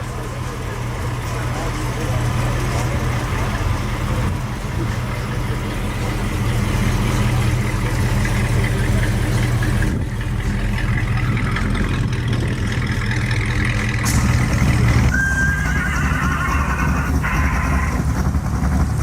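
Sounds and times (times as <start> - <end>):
car engine idling: 0.0 - 19.0
short high tone: 15.1 - 16.2
wavering high tone: 15.1 - 16.2.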